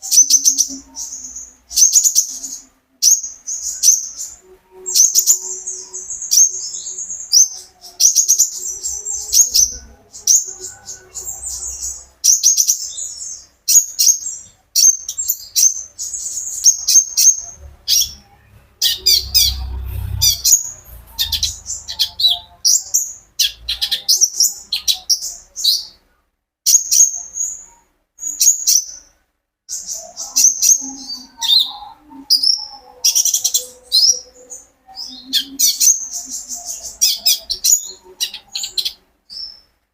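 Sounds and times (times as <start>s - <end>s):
sunbird singing: 0.0s - 26.0s, 29.7s - 39.7s.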